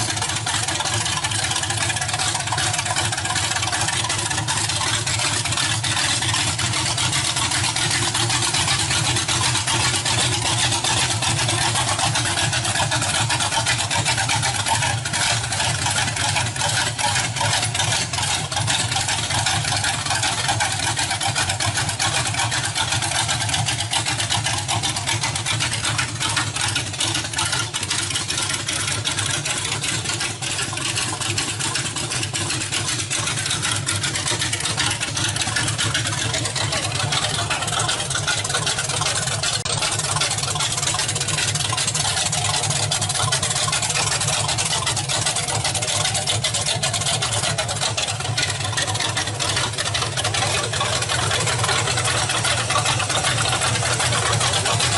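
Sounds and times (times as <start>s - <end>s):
engine idling: 0.0s - 54.9s.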